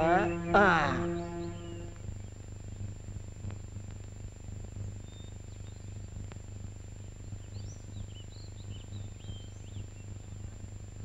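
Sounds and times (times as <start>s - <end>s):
small birds chirping: 0.0s - 2.1s, 7.2s - 10.5s
steady low hum: 0.0s - 2.4s.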